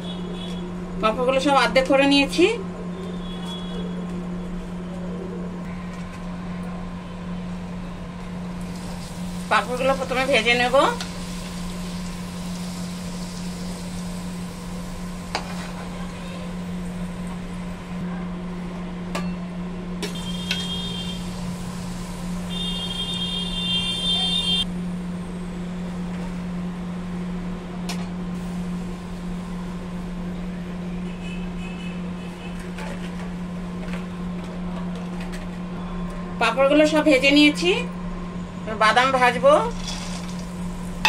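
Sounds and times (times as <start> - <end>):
frying in hot oil: 8.3 - 17.6, 20.0 - 24.7, 38.8 - 41.0.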